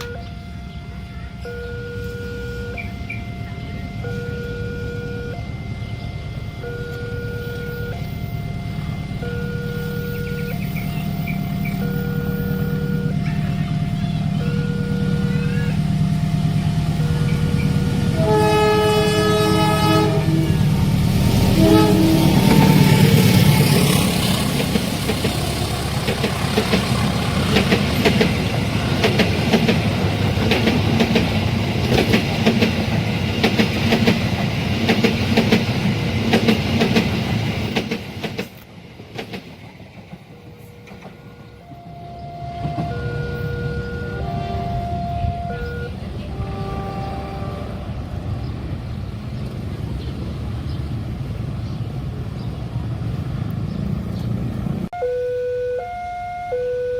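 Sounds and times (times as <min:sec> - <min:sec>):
crossing signal two-note alarm: 0:00.0 - 0:20.6, 0:40.8 - 0:47.6, 0:55.0 - 0:56.9
train horn blast: 0:00.0 - 0:24.8, 0:40.5 - 0:48.3
diesel train rumble: 0:00.0 - 0:55.2
wheels clattering over rails: 0:20.9 - 0:41.4.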